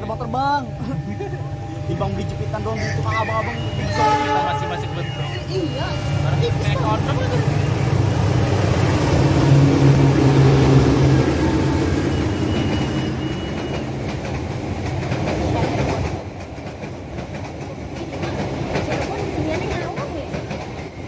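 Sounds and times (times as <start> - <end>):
locomotive engine droning: 0.0 - 15.6
passenger coaches rumbling: 0.0 - 21.0
wheels clicking over rail joints: 12.6 - 21.0.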